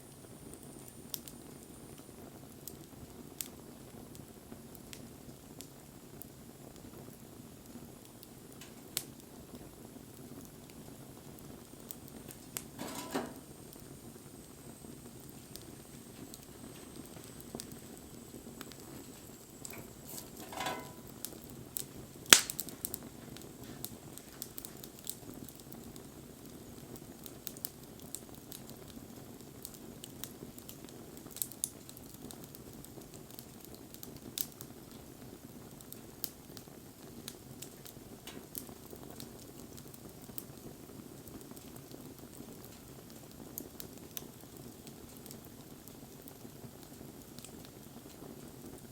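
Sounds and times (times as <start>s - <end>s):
campfire hissing and crackling: 0.0s - 48.9s
loud sharp pop: 22.4s - 22.6s.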